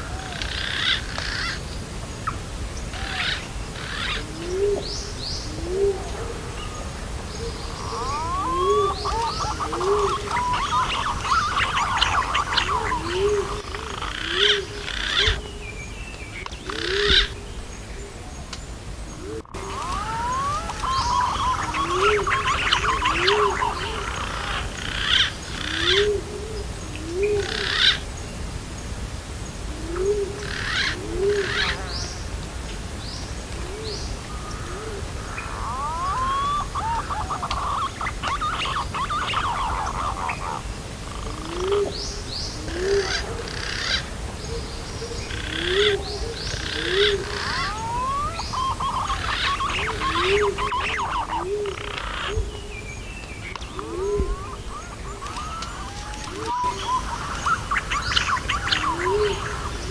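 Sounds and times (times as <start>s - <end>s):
low pigeon hoots: 3.0s - 4.9s, 5.5s - 15.5s, 19.2s - 28.0s, 29.7s - 31.9s, 33.6s - 40.6s, 41.2s - 42.0s, 42.6s - 52.8s, 53.6s - 59.9s
whistled gliding bird chirps: 7.6s - 13.7s, 19.5s - 24.1s, 35.5s - 40.6s, 46.4s - 52.4s, 53.6s - 59.9s.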